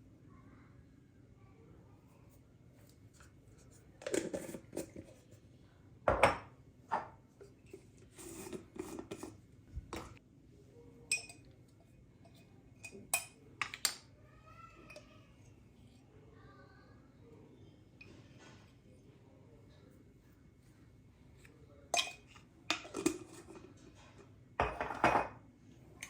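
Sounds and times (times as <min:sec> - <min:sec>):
dishes and utensils clinking: 0:04.0 - 0:05.1, 0:08.2 - 0:09.4, 0:11.1 - 0:11.5, 0:12.2 - 0:14.1, 0:21.9 - 0:25.4.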